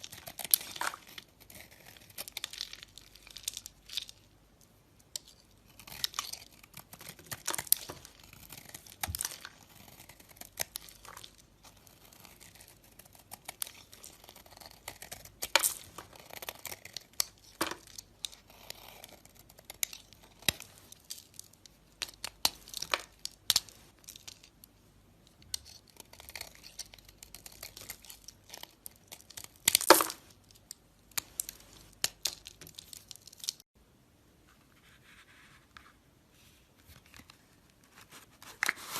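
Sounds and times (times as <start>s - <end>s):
blade cutting soap crackling: 0.0s - 4.2s, 5.0s - 23.6s, 25.4s - 33.6s.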